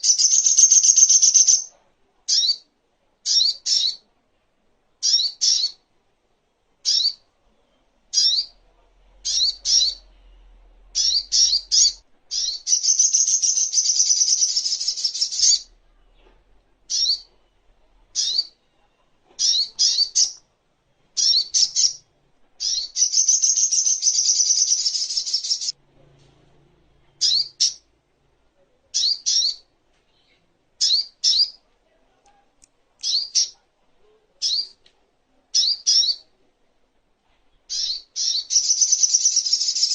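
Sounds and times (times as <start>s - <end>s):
bird chirping: 0.0s - 1.7s, 2.3s - 4.0s, 5.0s - 5.9s, 6.8s - 20.4s, 21.2s - 25.8s, 27.0s - 27.9s, 28.9s - 31.6s, 35.5s - 36.3s, 37.5s - 39.9s
bird rapid trill: 0.0s - 1.7s, 11.0s - 15.6s, 22.6s - 25.7s, 37.7s - 39.9s.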